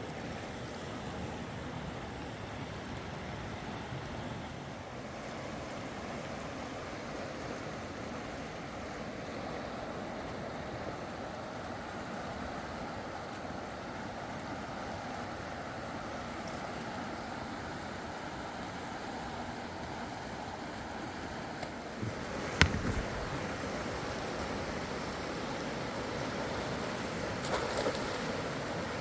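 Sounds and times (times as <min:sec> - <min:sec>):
river water flowing: 0:00.1 - 0:29.0
sharp knocks: 0:22.0 - 0:23.4.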